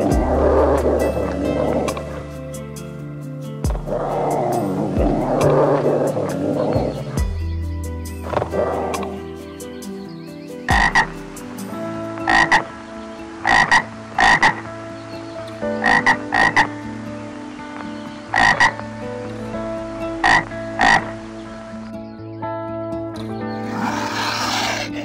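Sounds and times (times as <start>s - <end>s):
frog croaking: 0.0s - 2.3s, 3.7s - 7.4s, 8.2s - 9.3s, 10.7s - 11.2s, 12.1s - 12.8s, 13.4s - 14.7s, 15.7s - 16.8s, 18.3s - 18.9s, 20.1s - 21.3s, 23.6s - 25.0s.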